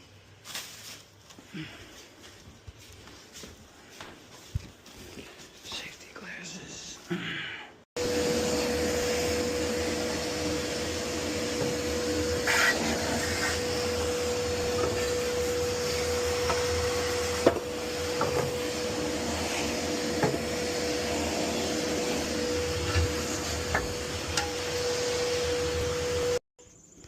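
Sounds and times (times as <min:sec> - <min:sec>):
electric motor humming: 0:08.0 - 0:26.4.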